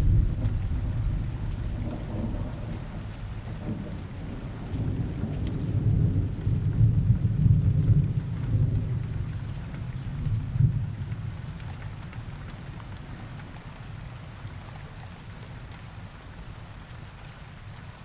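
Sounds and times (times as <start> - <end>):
low rolling thunder: 0.0 - 11.0
steady rain: 0.0 - 18.0.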